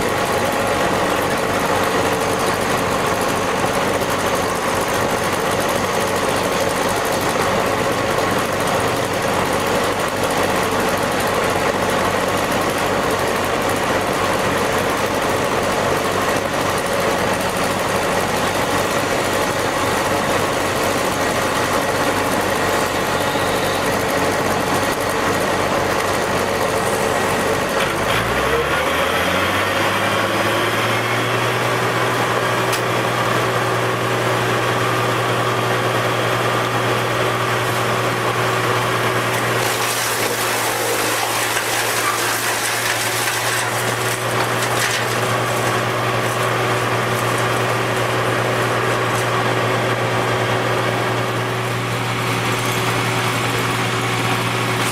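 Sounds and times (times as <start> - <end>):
engine running and revving: 27.8 - 33.8.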